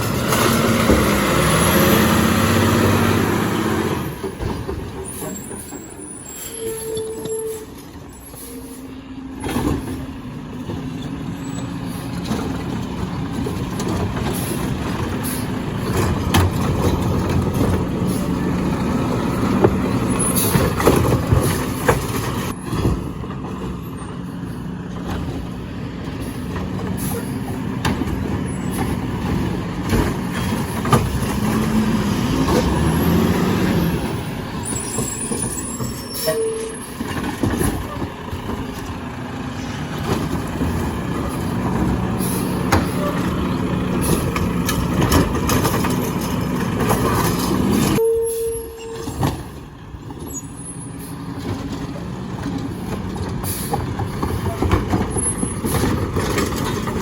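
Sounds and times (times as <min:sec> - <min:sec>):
garbage truck engine hum: 0:00.0 - 0:57.0
metal clanks: 0:40.0 - 0:48.0.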